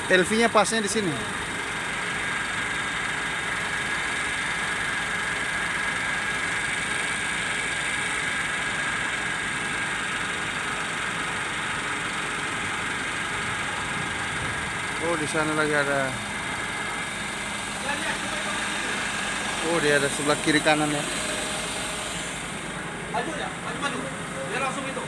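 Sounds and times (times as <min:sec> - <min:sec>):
vehicle engine idling: 0:08.3 - 0:25.0.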